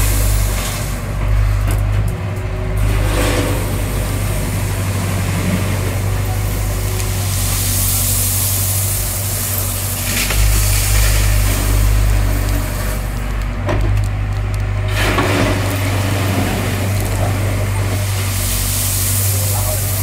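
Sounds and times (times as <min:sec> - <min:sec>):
excavator engine running: 0:00.0 - 0:20.0
stones scraping and rattling: 0:09.9 - 0:17.5.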